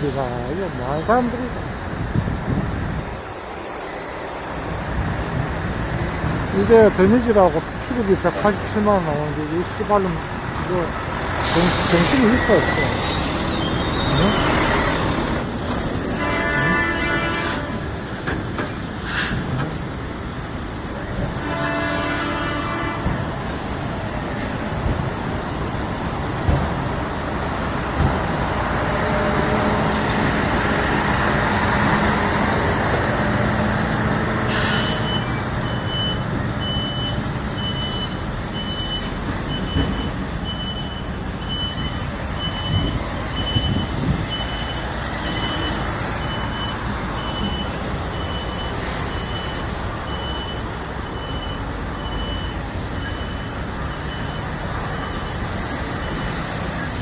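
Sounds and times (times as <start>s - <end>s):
heavy truck running: 0.0s - 57.0s
high electronic beeps: 11.7s - 15.1s.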